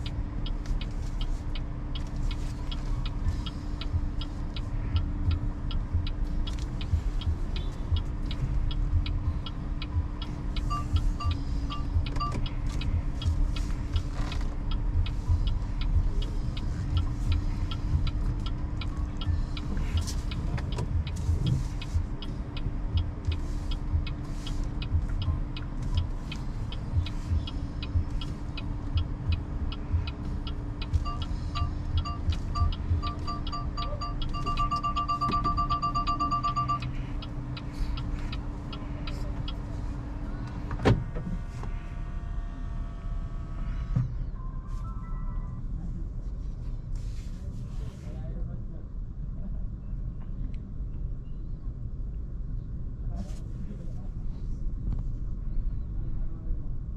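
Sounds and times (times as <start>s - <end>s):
fast regular ticking: 0.0s - 40.5s
road noise inside car: 0.0s - 56.9s
short repeated beeps: 10.6s - 12.5s, 31.0s - 37.1s, 44.3s - 45.6s.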